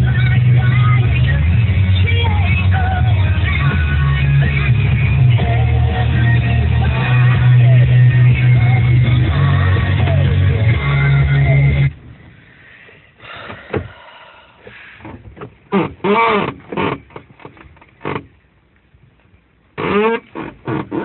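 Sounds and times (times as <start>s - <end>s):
radio playing guitar song: 0.0s - 12.0s.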